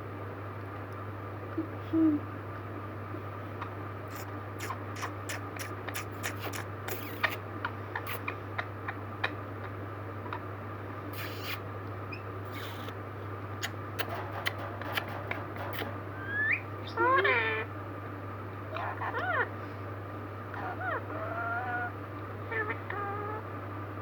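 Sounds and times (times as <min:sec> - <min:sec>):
beak scraping: 0:04.1 - 0:07.4, 0:11.2 - 0:13.0, 0:13.6 - 0:17.4
parrot beak clicking: 0:04.1 - 0:07.4, 0:11.2 - 0:11.6, 0:12.5 - 0:12.9, 0:13.6 - 0:16.6.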